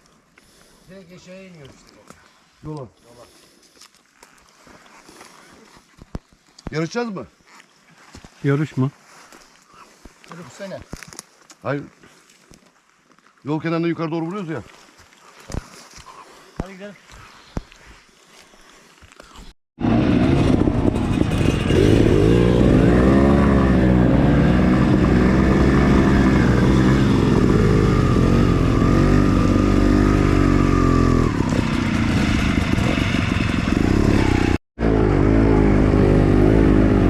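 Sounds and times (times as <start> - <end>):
dirt bike engine revving: 19.8 - 37.0.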